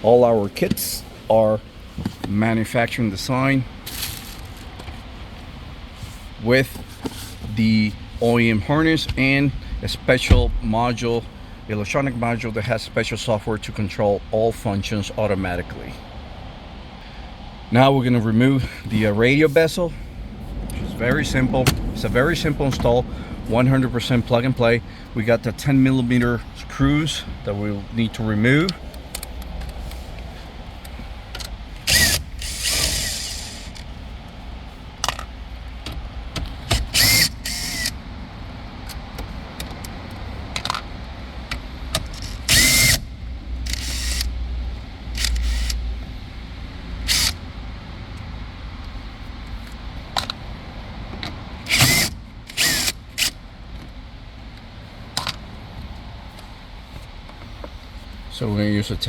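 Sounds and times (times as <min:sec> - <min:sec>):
power tool whirring: 0:31.8 - 0:33.9, 0:36.8 - 0:38.0, 0:42.1 - 0:44.4, 0:45.1 - 0:45.8, 0:47.1 - 0:47.4, 0:51.7 - 0:53.4.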